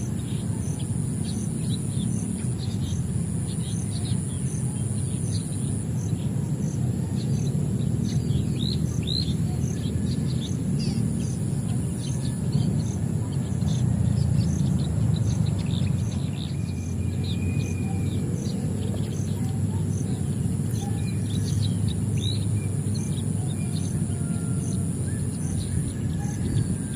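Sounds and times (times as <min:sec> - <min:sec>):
small birds chirping: 0:00.0 - 0:26.9.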